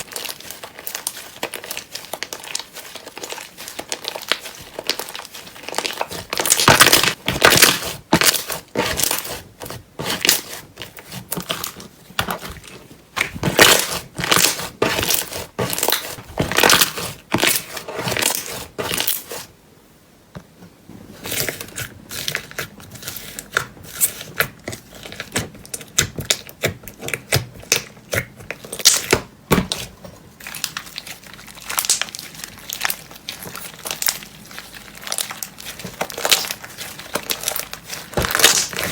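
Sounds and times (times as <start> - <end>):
slime being squished: 0.0 - 19.5, 21.3 - 38.9.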